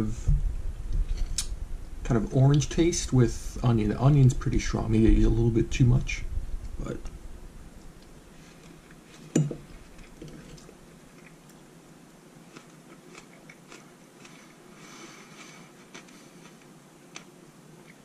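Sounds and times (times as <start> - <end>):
man chewing food: 7.9 - 18.0.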